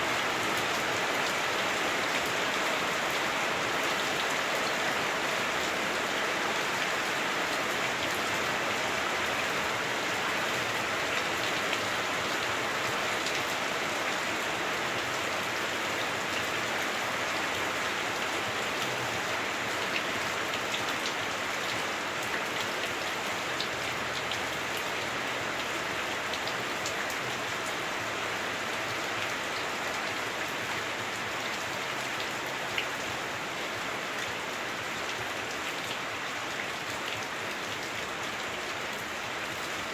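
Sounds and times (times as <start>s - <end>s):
heavy rain on a roof: 0.0s - 39.9s.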